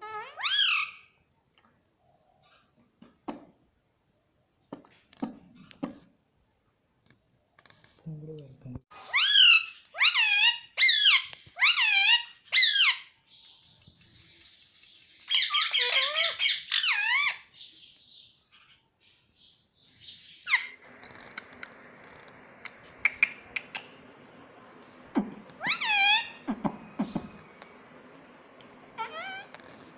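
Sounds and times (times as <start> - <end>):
parakeet shrill squawks: 0.0 - 1.1, 9.0 - 13.1, 15.3 - 17.5, 25.6 - 26.5, 29.0 - 29.7.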